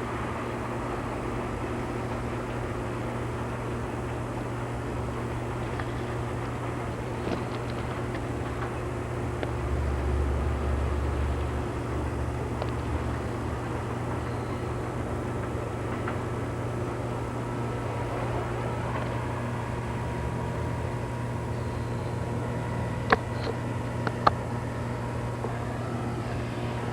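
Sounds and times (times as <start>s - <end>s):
diesel locomotives idling: 0.0s - 26.9s.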